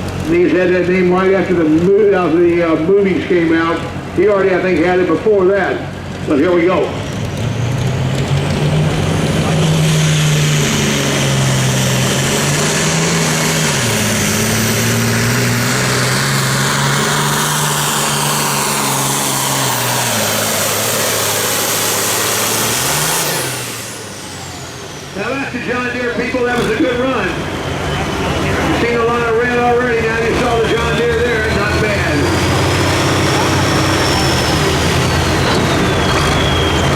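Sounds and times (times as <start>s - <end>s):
diesel engine running flat out: 0.0s - 36.9s
high turbo whistle: 34.0s - 36.9s.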